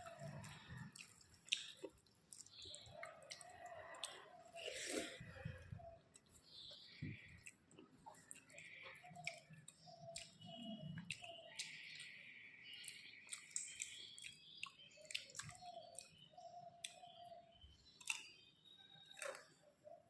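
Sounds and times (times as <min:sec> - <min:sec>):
close chewing with mouth clicks: 0:00.0 - 0:17.3, 0:17.9 - 0:18.4, 0:19.0 - 0:19.6
faint repeated tones: 0:05.2 - 0:17.8.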